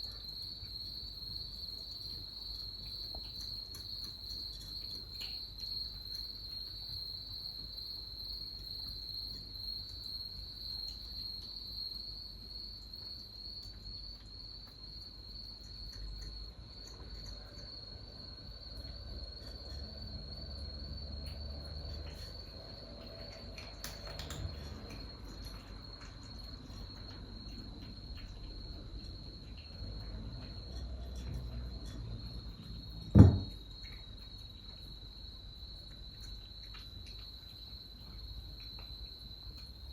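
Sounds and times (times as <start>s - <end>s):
crickets chirping: 0.0s - 39.9s
faint ticks and rustles: 0.0s - 39.9s
loud thump: 33.1s - 33.6s.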